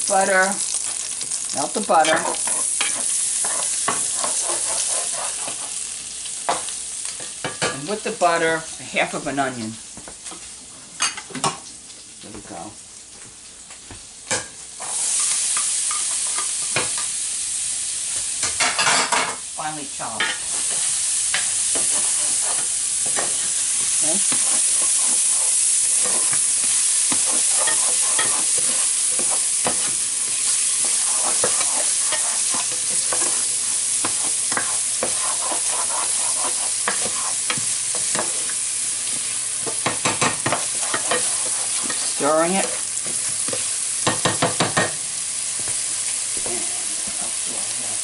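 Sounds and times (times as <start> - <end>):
onion sizzling in butter: 0.0 - 48.0
utensil scraping a pan: 1.9 - 5.8, 20.5 - 43.8.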